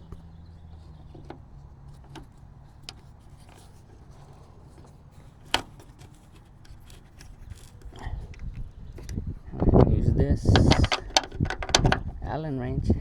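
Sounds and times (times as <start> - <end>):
hands handling metal hardware: 0.0 - 9.7, 10.5 - 12.2.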